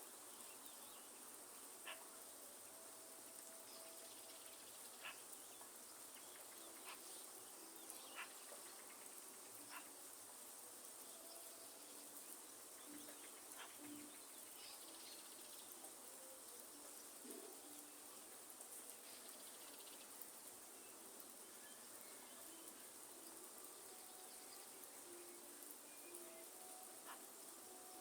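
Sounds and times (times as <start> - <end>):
light rain: 0.0 - 28.0
sharp water drips: 3.1 - 28.0.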